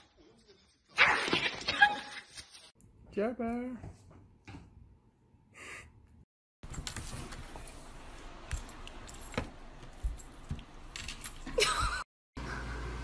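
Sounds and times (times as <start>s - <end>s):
collar tags jingling: 6.7s - 11.8s.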